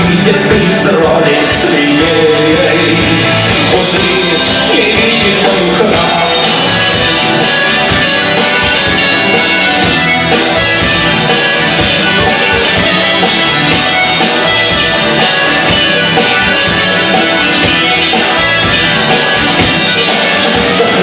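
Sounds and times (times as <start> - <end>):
rock band instrumental: 0.0 - 21.0.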